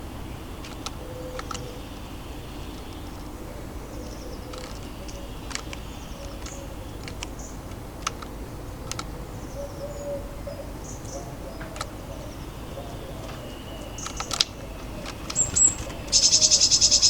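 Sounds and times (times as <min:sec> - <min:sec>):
low urban background rumble: 0:00.0 - 0:17.0
beaks pecking at seed: 0:00.5 - 0:09.6, 0:10.8 - 0:17.0
faint high bird chirps: 0:09.3 - 0:17.0.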